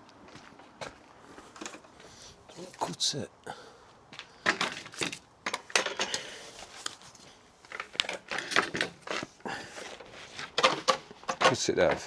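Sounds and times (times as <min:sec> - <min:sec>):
wooden branches clicking and clattering: 0:04.4 - 0:07.0, 0:07.6 - 0:12.0.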